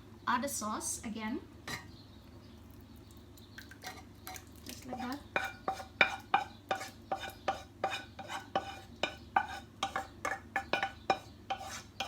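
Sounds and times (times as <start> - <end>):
utensil clinking against cookware: 3.8 - 11.8.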